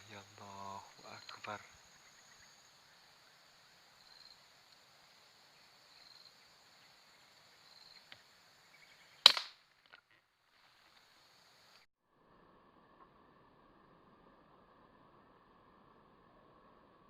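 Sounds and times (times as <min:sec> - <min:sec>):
air rifle shot: 0:09.2 - 0:09.5.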